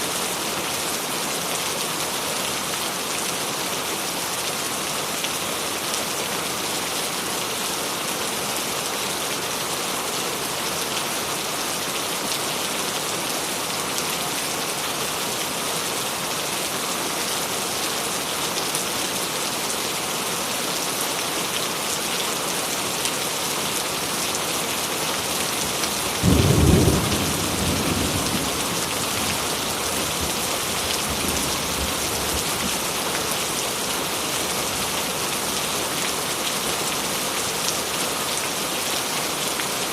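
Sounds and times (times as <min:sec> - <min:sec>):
heavy rain: 0:00.0 - 0:39.9
thunder crack rumbling: 0:26.2 - 0:30.4.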